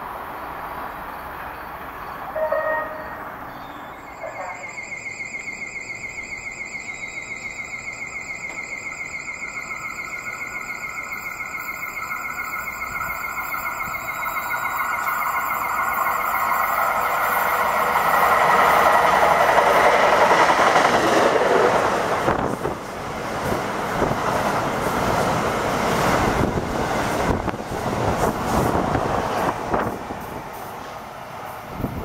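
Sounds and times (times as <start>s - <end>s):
train rushing noise: 0.0s - 32.0s
high pulsing whine: 3.9s - 19.6s.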